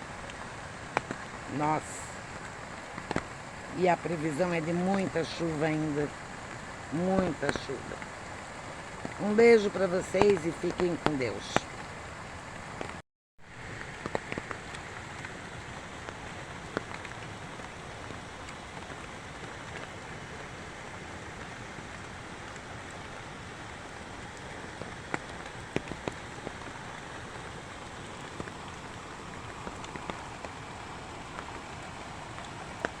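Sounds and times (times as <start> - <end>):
steady rain: 0.0 - 33.0.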